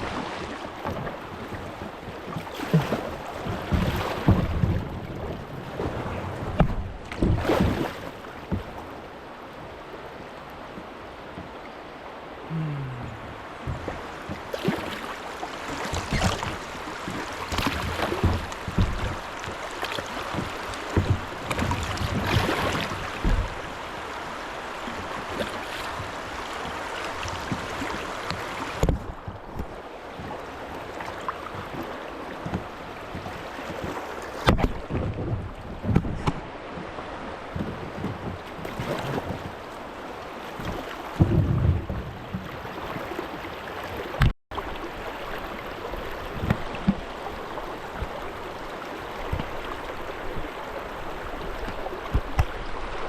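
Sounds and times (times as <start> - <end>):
paddle splashes: 0.0 - 53.0
running water: 0.0 - 53.0.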